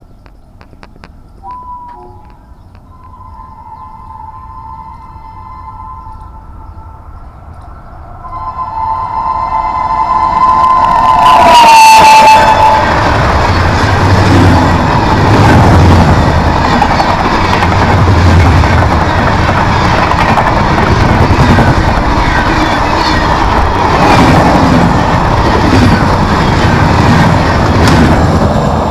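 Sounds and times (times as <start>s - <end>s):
train wheels on rails: 0.2s - 28.9s
train horn: 1.4s - 7.5s, 8.2s - 13.8s.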